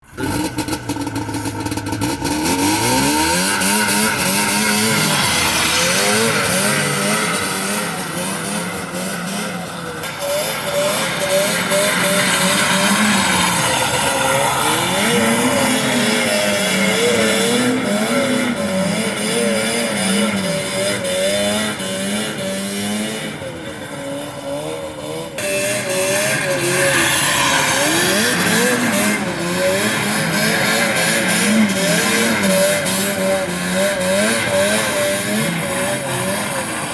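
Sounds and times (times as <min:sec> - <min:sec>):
snowmobile engine revving: 0:00.0 - 0:36.9.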